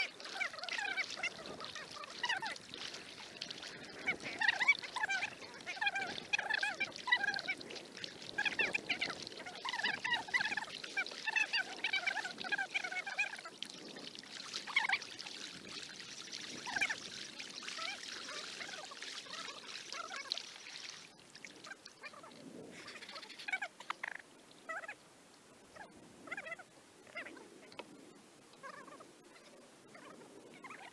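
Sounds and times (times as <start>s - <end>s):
birds calling: 0.0s - 15.0s.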